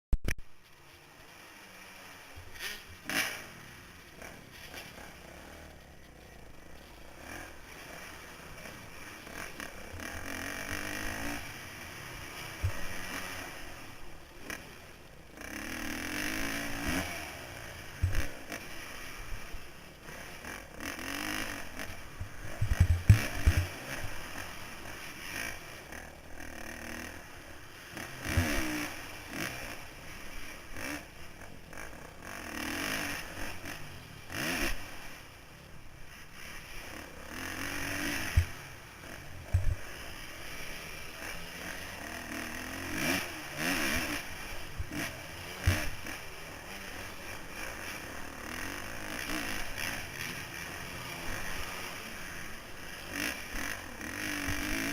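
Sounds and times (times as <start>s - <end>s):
dirt bike engine revving: 0.8s - 54.9s.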